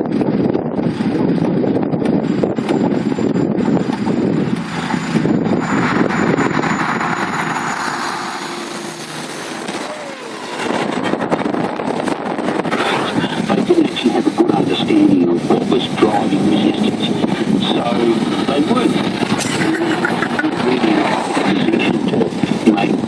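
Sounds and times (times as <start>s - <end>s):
heavy truck driving past: 2.8s - 12.7s.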